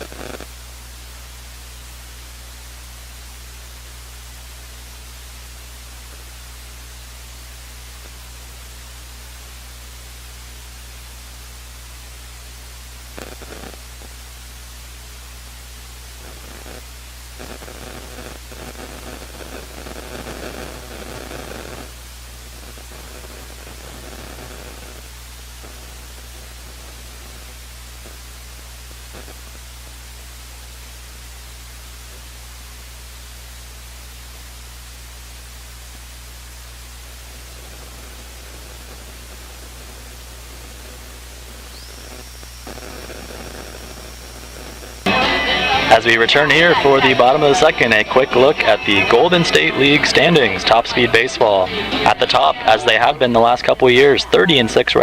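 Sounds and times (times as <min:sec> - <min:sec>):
electrical hum and hiss: 0:00.0 - 0:55.0.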